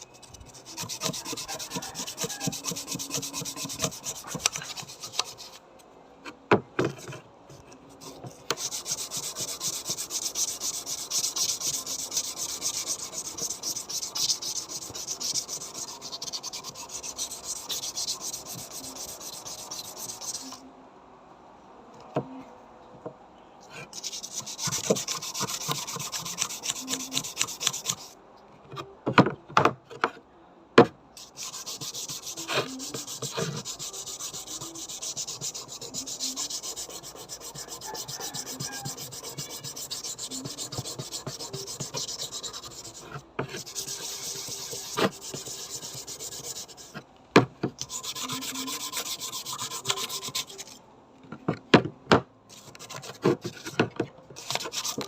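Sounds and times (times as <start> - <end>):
abrasive rubbing on metal: 0.0 - 5.6, 7.9 - 20.6, 31.2 - 47.0, 47.8 - 50.8.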